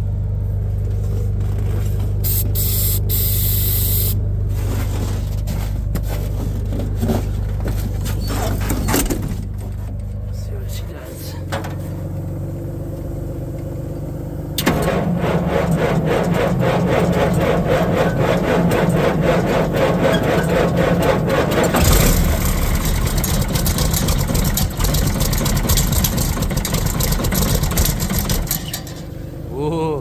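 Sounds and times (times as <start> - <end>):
diesel engine running: 0.0 - 30.0
low engine hum: 0.0 - 30.0
starter motor cranking: 2.2 - 4.2, 14.6 - 29.1.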